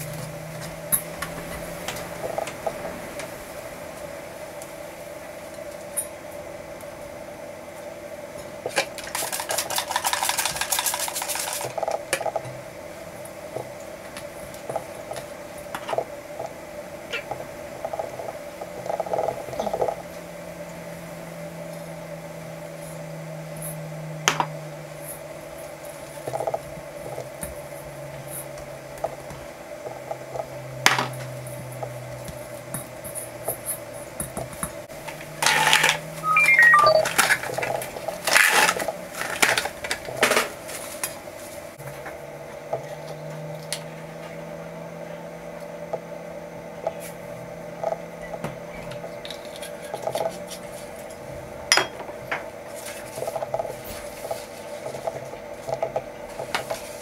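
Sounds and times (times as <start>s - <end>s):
hands kneading dough in a bowl: 8.7s - 12.5s.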